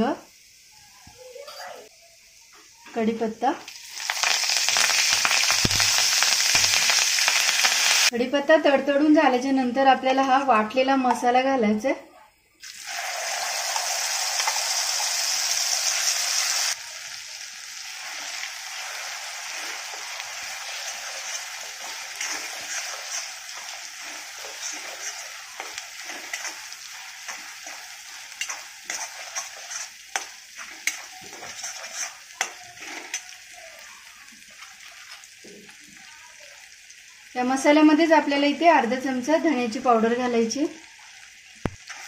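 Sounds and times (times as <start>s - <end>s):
paste sizzling in hot oil: 0.0s - 2.9s, 3.6s - 8.2s, 12.6s - 42.0s
spatula scraping a pan: 17.9s - 33.4s.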